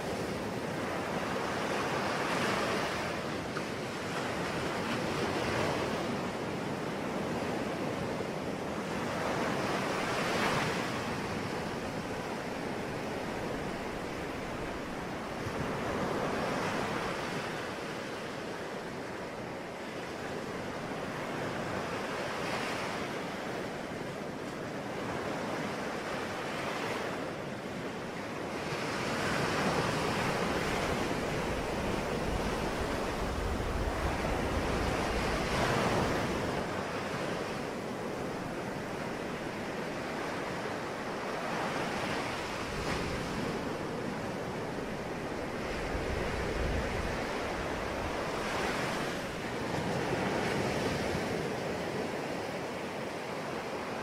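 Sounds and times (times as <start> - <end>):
sea waves washing in: 25.3 - 54.0.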